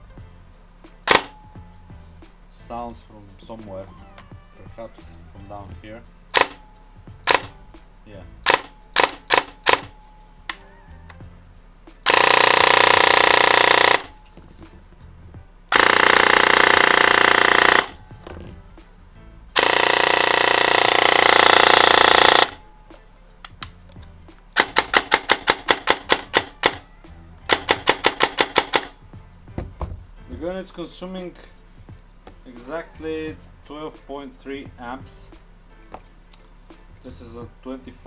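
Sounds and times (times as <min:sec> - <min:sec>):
airsoft gun full-auto firing: 0:01.0 - 0:01.4, 0:06.3 - 0:06.6, 0:07.2 - 0:07.6, 0:08.4 - 0:10.0, 0:12.0 - 0:14.2, 0:15.7 - 0:18.0, 0:19.6 - 0:22.7, 0:24.6 - 0:26.9, 0:27.5 - 0:29.0
airsoft gun single shots: 0:01.0 - 0:01.5, 0:06.3 - 0:07.6, 0:08.4 - 0:10.6, 0:24.6 - 0:26.8.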